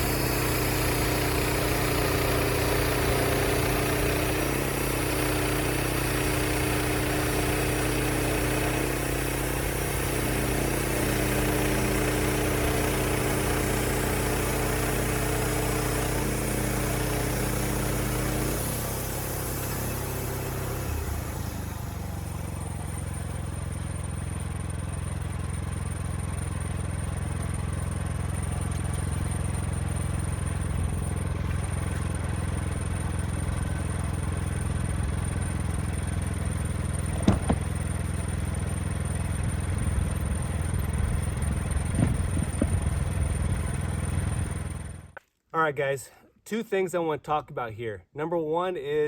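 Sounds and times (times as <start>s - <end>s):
sawmill engine running: 0.0s - 45.8s
sharp knocks: 37.2s - 37.8s.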